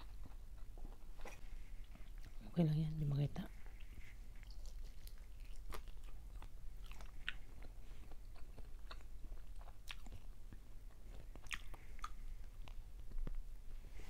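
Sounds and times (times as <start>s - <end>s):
chewing and biting food: 3.8s - 13.4s.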